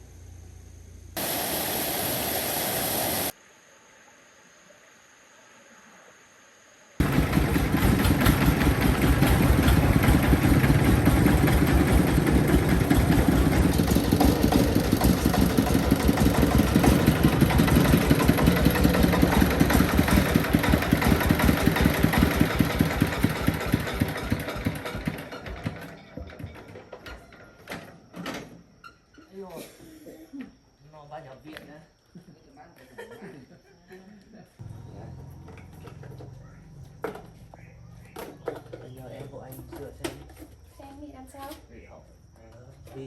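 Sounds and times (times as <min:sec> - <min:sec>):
tractor engine running: 0:07.0 - 0:26.8.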